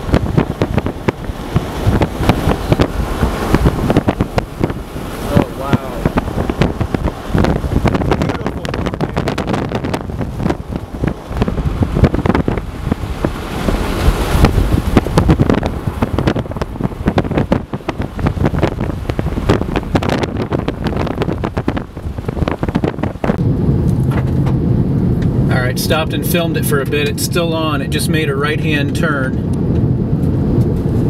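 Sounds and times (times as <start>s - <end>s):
gusty wind buffeting microphone: 0.0s - 31.0s.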